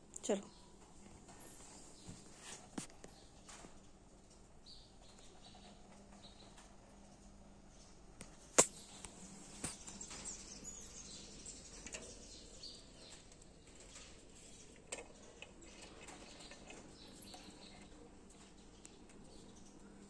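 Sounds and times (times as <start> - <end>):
faint bird chirps: 8.7 - 20.0.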